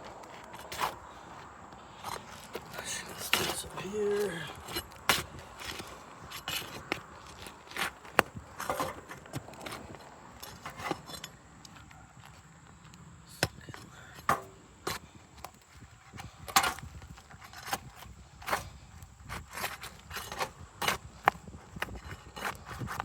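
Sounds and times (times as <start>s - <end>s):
roof shingles cracking and scraping: 0.0s - 11.8s.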